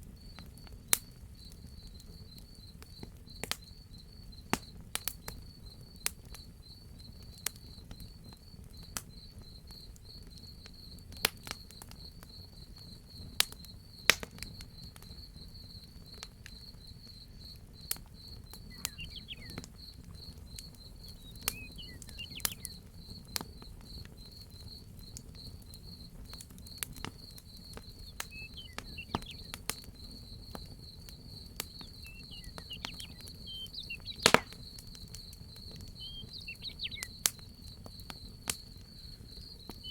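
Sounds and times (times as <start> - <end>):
crickets chirping: 0.0 - 39.9
wood fire crackling: 0.0 - 39.9
faint bird chirps: 14.8 - 24.0, 27.6 - 37.8, 38.6 - 39.9.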